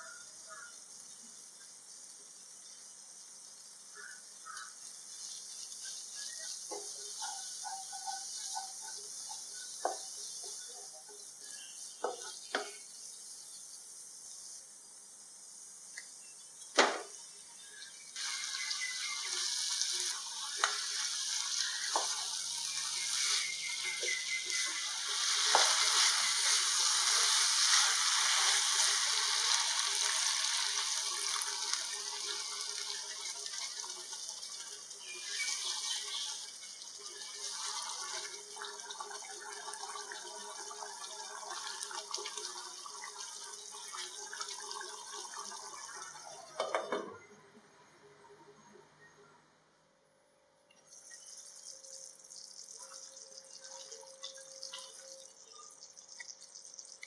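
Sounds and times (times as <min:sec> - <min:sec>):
food sizzling: 0:00.0 - 0:47.3, 0:50.9 - 0:57.0
wooden spatula stirring in pan: 0:05.0 - 0:12.8, 0:19.2 - 0:39.4.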